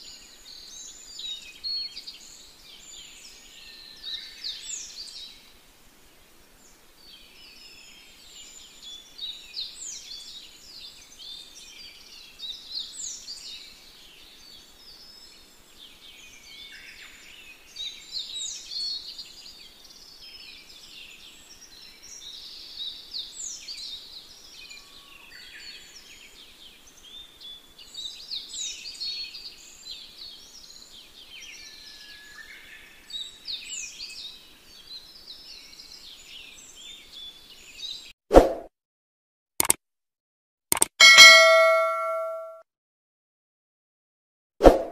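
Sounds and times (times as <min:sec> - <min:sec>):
bird call with falling whistle: 0:41.0 - 0:42.5.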